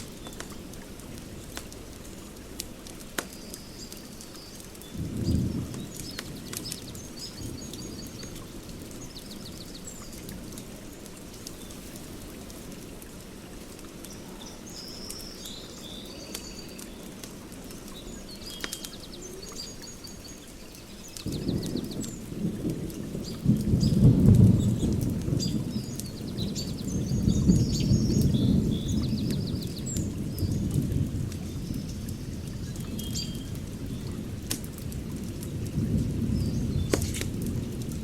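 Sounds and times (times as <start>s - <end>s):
small birds chirping: 0.0s - 13.0s, 13.9s - 38.0s
fire crackling and popping: 0.0s - 14.3s, 14.9s - 38.0s.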